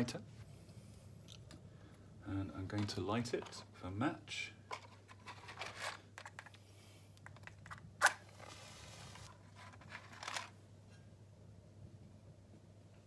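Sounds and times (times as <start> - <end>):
matchbox handling rustles and clicks: 4.7 - 6.6, 7.2 - 10.6.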